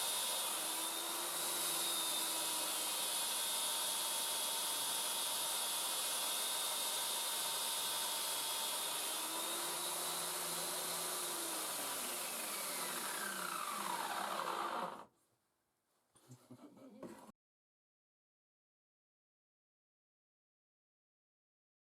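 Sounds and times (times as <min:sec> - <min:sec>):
belt grinder whirring: 0:00.0 - 0:15.1.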